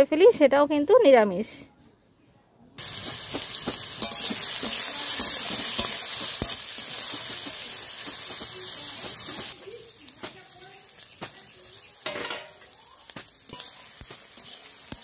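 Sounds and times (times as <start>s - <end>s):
vegetables frying with a sizzle: 2.8s - 15.0s
spatula scraping and clicking on pan: 3.0s - 9.6s, 12.0s - 15.0s.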